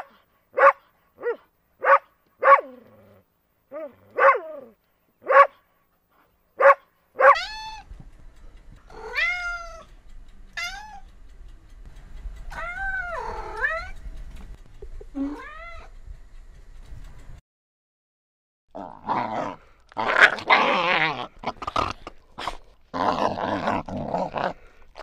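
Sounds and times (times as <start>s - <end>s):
low steady hum: 0.1s - 17.4s
cat meowing: 7.3s - 7.8s, 8.9s - 9.9s, 10.6s - 11.1s, 12.5s - 14.0s, 15.2s - 15.9s.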